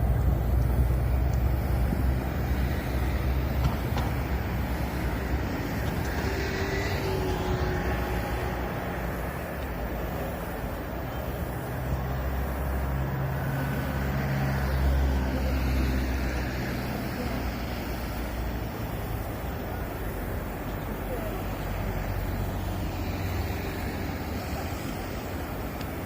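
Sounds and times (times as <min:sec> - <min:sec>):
road traffic noise: 0:00.0 - 0:26.0
vehicle engine hum: 0:00.0 - 0:26.0.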